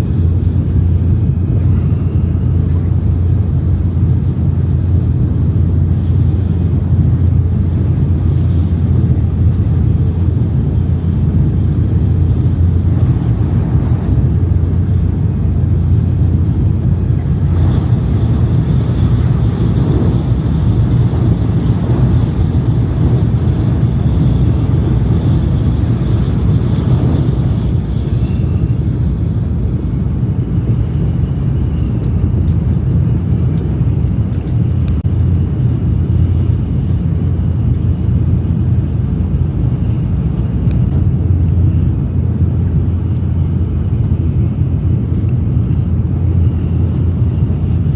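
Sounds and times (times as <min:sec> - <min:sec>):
train rumbling at speed: 0:00.0 - 0:47.9.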